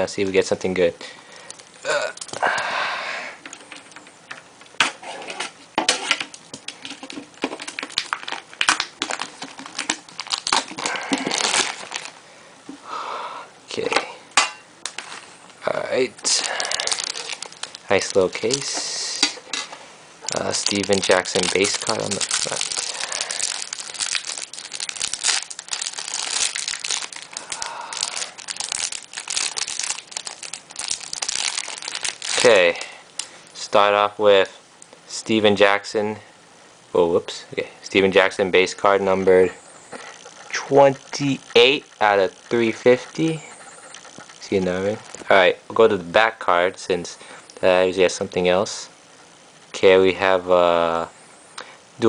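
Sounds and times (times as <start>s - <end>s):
packaging crinkling and tearing: 6.1s - 12.2s, 16.2s - 18.8s, 20.3s - 33.3s, 39.9s - 45.3s
sharp clicks and crackles: 20.3s - 32.5s, 39.9s - 45.3s.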